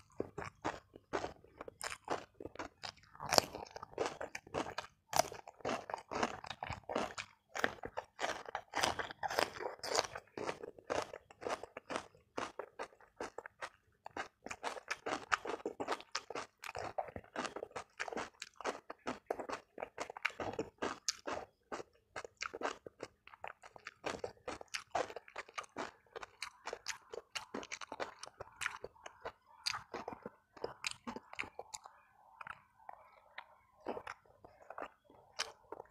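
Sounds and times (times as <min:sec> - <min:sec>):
chewing crunchy food: 0:00.0 - 0:35.9.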